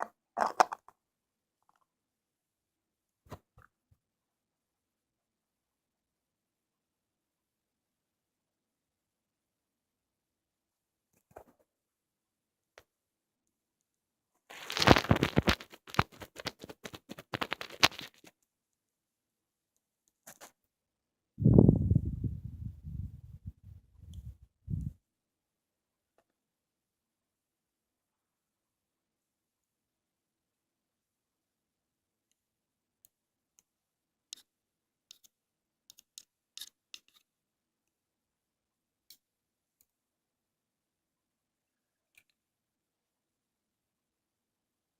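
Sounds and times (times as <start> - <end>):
ear cleaning clicks and scratches: 14.5 - 18.3
ear-cleaning tool crackling and scraping: 35.1 - 37.2.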